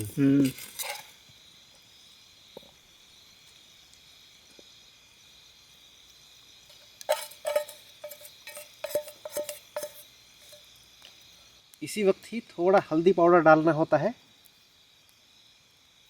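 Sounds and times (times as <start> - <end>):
high insect drone: 0.0 - 16.0
metal utensil clinking on pan: 0.4 - 1.1, 7.0 - 10.6.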